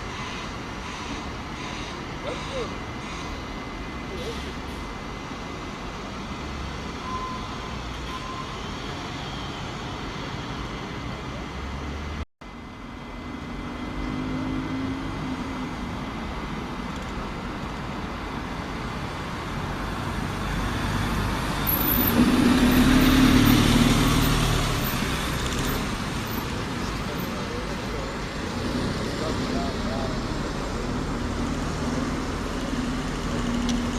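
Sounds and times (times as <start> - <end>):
heavy vehicle engine: 0.0 - 33.9
road traffic: 0.0 - 33.9
vehicle passing with whine: 19.6 - 33.9.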